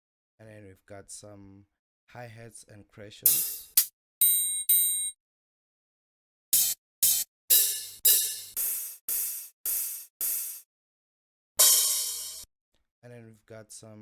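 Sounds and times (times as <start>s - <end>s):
bell-like metallic hit ringing: 3.3s - 5.1s, 6.6s - 8.6s, 11.6s - 12.4s
cymbal hits: 3.3s - 5.1s, 6.6s - 10.6s, 11.6s - 12.4s.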